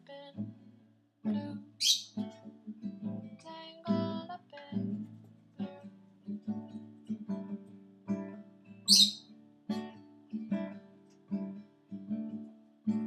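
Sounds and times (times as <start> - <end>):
acoustic guitar strumming: 1.3 - 13.0
bird high chirp: 1.8 - 2.2, 8.9 - 9.2.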